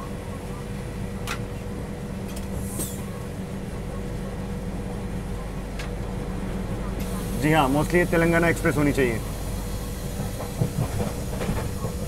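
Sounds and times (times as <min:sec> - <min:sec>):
train rumbling at speed: 0:00.0 - 0:12.0.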